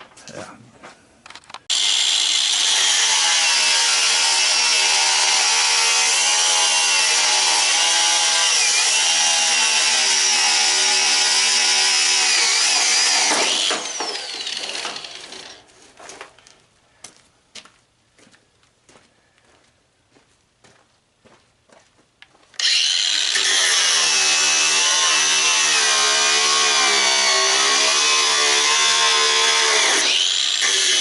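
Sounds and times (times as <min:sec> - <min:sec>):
angle grinder cutting metal: 0:01.7 - 0:15.7, 0:22.6 - 0:31.0.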